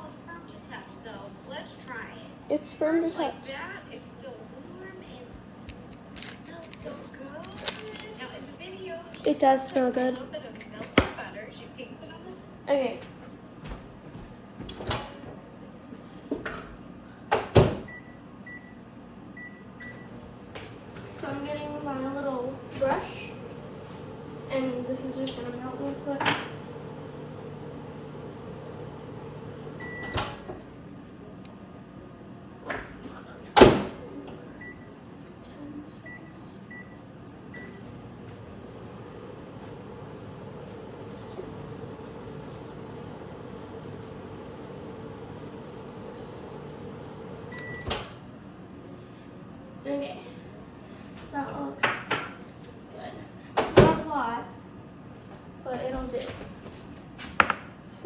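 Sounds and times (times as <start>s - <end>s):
microwave oven humming: 7.3s - 51.7s
microwave door shutting: 26.2s - 30.5s
kitchen knocks and clunks: 57.3s - 57.8s.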